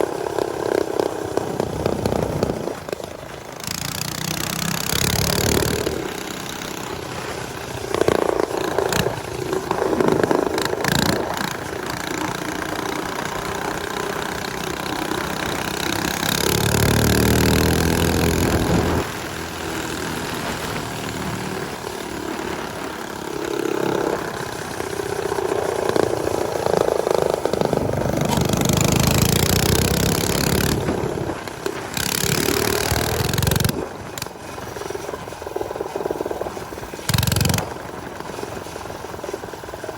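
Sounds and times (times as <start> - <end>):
small motorcycle engines revving: 0.0 - 39.9.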